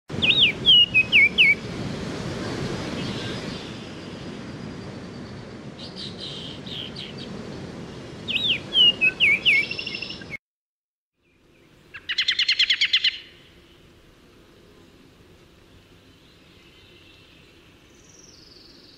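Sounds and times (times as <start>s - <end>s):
bird singing whistled phrases: 0.2s - 1.6s, 8.3s - 10.4s
rapid bird trill: 0.2s - 1.6s, 11.9s - 13.5s
low background hiss: 11.2s - 18.9s.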